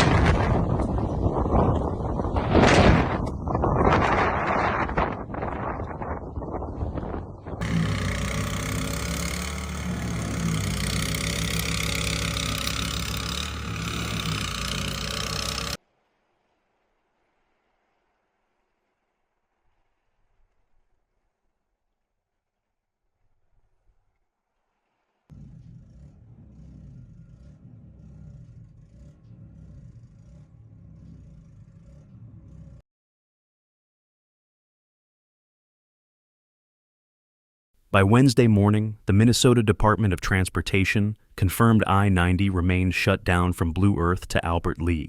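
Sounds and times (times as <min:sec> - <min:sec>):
vehicle engine running: 0:07.6 - 0:15.8, 0:25.3 - 0:32.8
low rumbling noise: 0:25.3 - 0:32.8.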